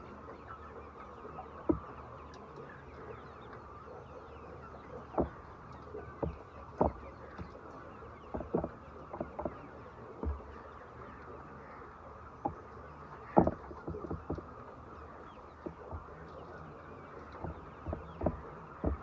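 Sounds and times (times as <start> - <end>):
chickens clucking: 0.0 - 19.0
short sharp knocks: 8.3 - 9.6, 13.4 - 14.5, 17.4 - 19.0.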